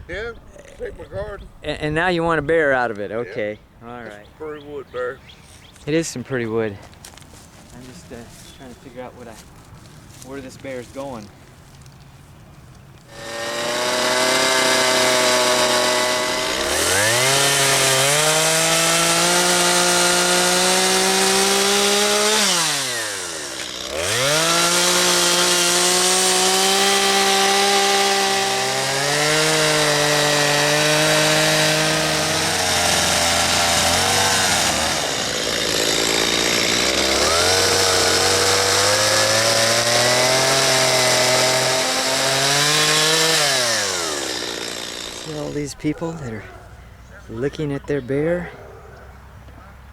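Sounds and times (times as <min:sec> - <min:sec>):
chainsaw cutting wood: 0:13.0 - 0:46.4.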